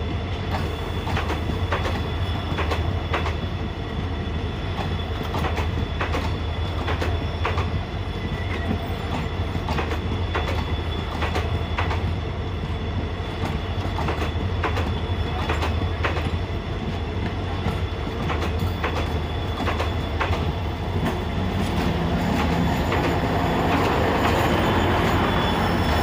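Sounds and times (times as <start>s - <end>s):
low train rumble: 0.0s - 26.0s
train wheels clicking over rail joints: 0.4s - 3.6s, 4.6s - 26.0s
locomotive passing: 15.3s - 26.0s.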